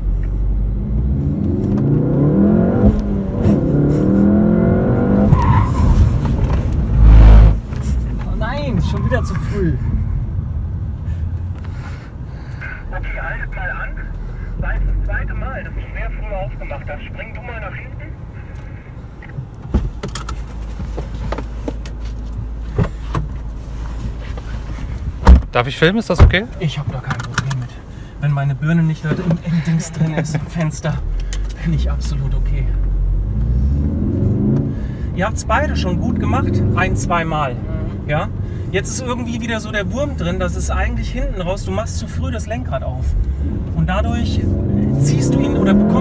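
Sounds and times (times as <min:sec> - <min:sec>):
car engine revving: 0:00.0 - 0:12.0, 0:30.0 - 0:46.0
tyre squeal: 0:05.2 - 0:06.3
car door clicks and knocks: 0:25.2 - 0:25.6.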